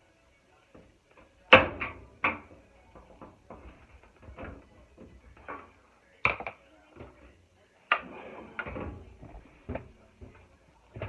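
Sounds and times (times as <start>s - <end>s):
knocks and clatters of dryer parts: 0.7s - 11.0s.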